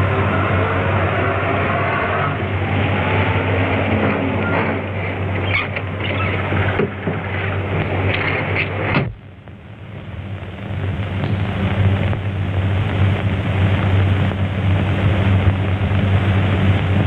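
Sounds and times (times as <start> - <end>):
soundtrack hiss: 0.0 - 17.0
old car engine running: 10.6 - 17.0.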